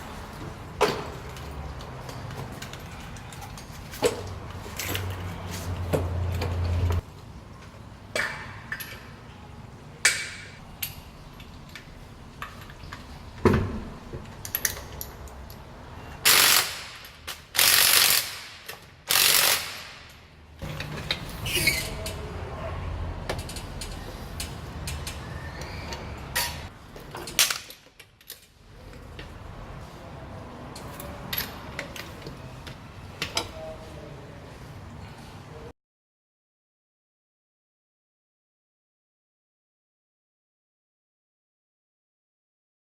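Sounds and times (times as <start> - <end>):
ratchet clicking: 16.2 - 20.0.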